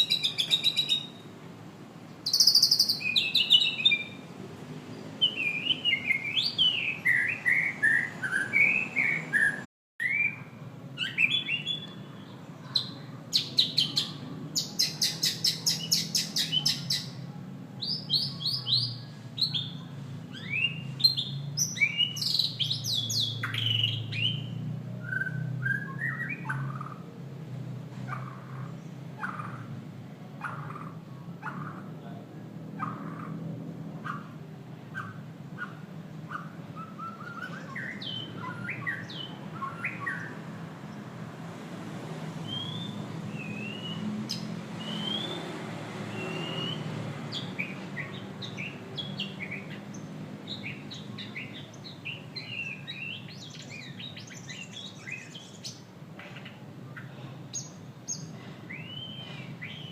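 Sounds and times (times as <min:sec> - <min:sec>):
bird singing whistled song: 0:00.0 - 0:01.2, 0:02.2 - 0:04.2, 0:05.2 - 0:17.2, 0:17.8 - 0:27.0, 0:35.0 - 0:40.4, 0:42.4 - 0:45.5, 0:46.1 - 0:55.8, 0:57.6 - 0:59.9.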